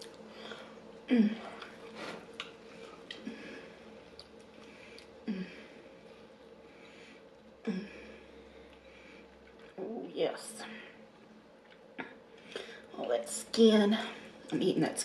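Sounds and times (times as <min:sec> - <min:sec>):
person humming mm: 0:01.1 - 0:01.8.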